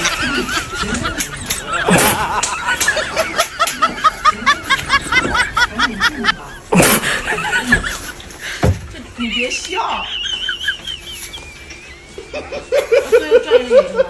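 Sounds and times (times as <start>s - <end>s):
high-pitched snickering laughter: 0.0s - 8.2s.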